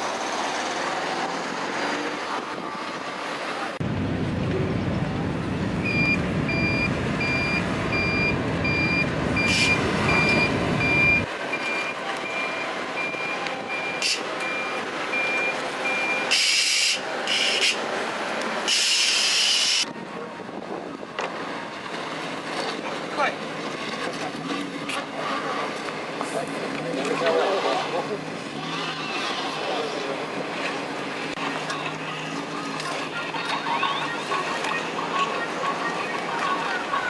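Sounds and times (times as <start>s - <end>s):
low engine rumble: 2.4s - 13.9s
reversing alarm beeping: 5.8s - 16.9s.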